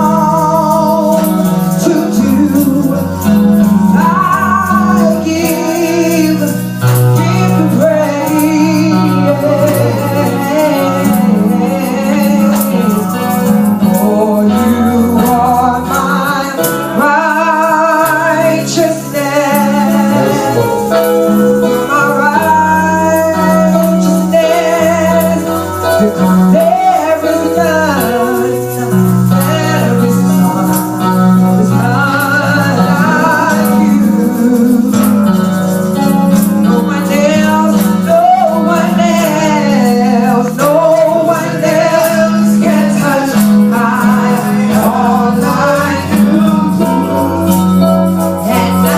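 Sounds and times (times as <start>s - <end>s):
person singing with vibrato: 0.0s - 48.9s
tambourine: 0.0s - 48.9s
bass notes: 17.1s - 26.7s.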